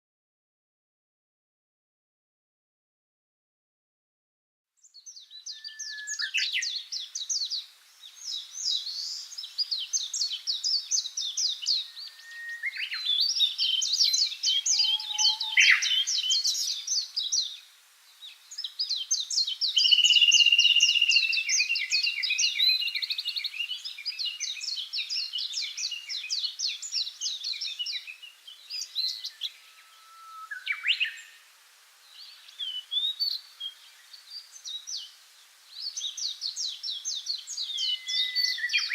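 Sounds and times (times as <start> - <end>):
songbirds trilling and warbling: 4.9 - 38.9.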